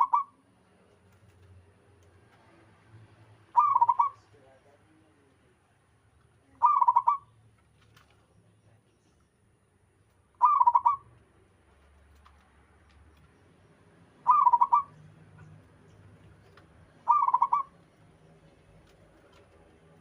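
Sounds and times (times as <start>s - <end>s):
dove cooing: 0.0s - 0.3s, 3.6s - 4.2s, 6.6s - 7.3s, 10.4s - 11.0s, 14.3s - 15.0s, 17.0s - 17.8s.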